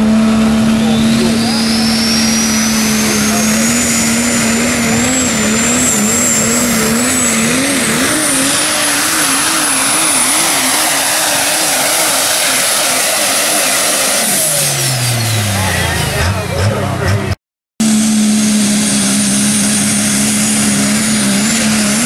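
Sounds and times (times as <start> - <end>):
diesel engine at full throttle: 0.0 - 22.0
turbo whistle: 0.6 - 4.3.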